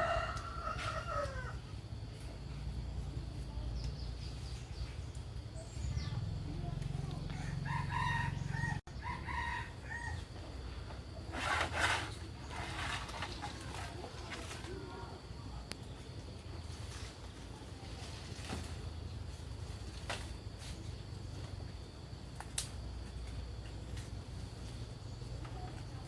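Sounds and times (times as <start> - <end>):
rooster crowing: 0.0 - 1.7, 7.3 - 10.4
brief scraping noise: 11.3 - 14.7.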